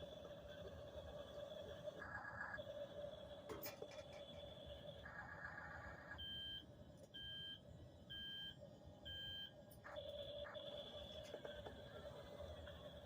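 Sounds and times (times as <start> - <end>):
electronic beeps: 7.2 - 13.0.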